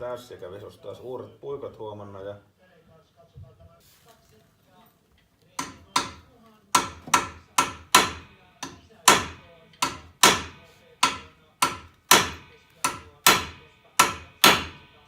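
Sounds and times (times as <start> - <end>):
hammer striking metal: 5.6 - 15.0.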